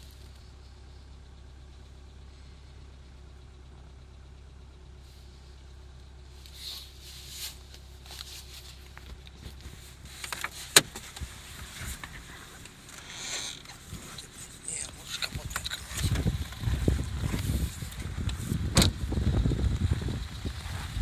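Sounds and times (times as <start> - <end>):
car engine idling: 0.0 - 21.0
clicks and rustles: 6.4 - 19.0.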